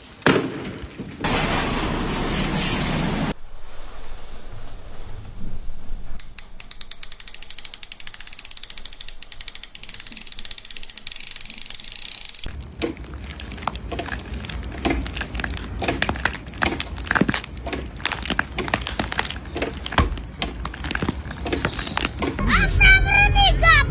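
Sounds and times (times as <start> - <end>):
fast mechanical clicks: 6.2 - 12.6.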